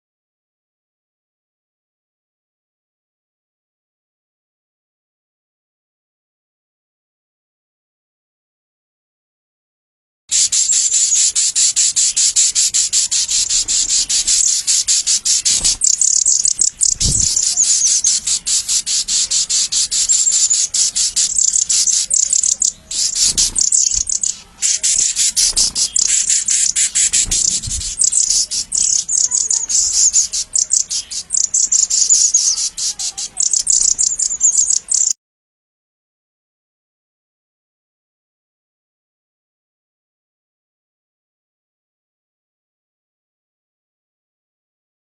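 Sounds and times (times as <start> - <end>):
rapid high-pitched bird chirping: 10.3 - 35.2.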